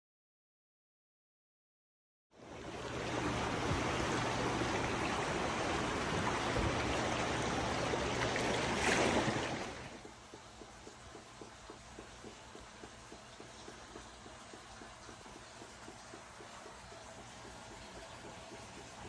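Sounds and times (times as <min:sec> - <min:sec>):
rushing floodwater: 0:02.4 - 0:10.0.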